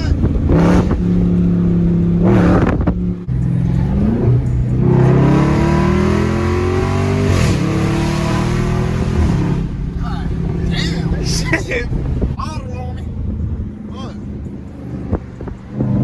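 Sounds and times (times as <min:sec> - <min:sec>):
loud car engine revving: 0:00.0 - 0:12.4.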